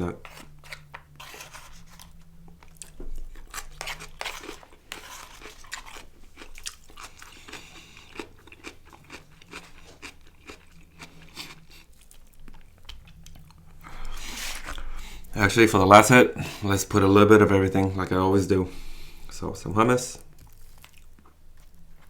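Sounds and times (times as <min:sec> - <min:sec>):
chewing and crunching food: 0:00.1 - 0:15.4, 0:20.2 - 0:22.0.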